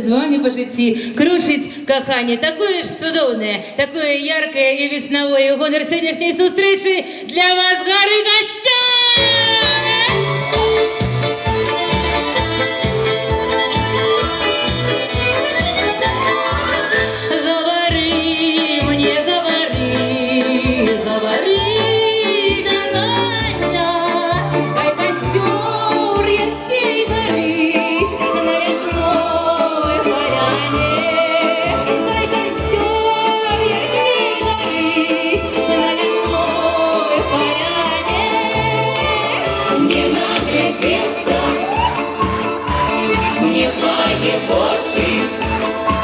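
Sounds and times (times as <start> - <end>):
folk ensemble playing: 9.1 - 46.0
beating bass line: 9.2 - 46.0
shaken percussion: 9.2 - 46.0.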